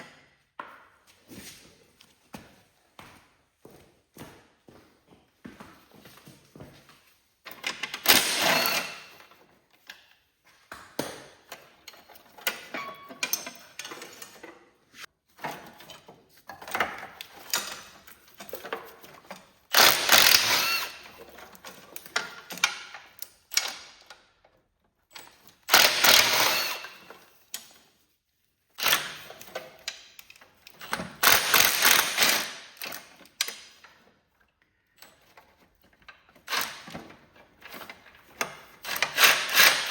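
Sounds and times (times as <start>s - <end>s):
hand tools clicking and rattling metal: 7.4s - 10.0s, 11.0s - 24.2s, 25.1s - 27.9s, 28.8s - 34.1s, 34.9s - 39.9s.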